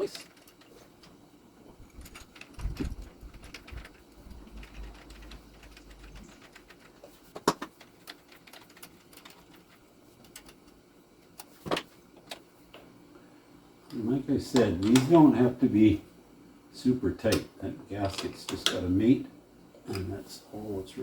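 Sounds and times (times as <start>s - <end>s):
low rumble and thumps: 1.7s - 7.0s.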